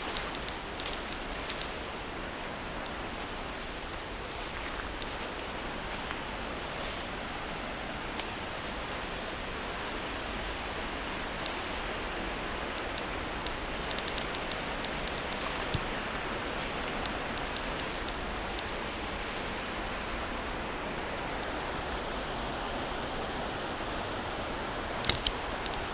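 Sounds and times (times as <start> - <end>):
sharp small clicks: 0.0 - 1.8, 11.4 - 11.8, 12.7 - 15.9, 16.9 - 18.8, 25.0 - 25.9
river water rushing: 0.0 - 25.9.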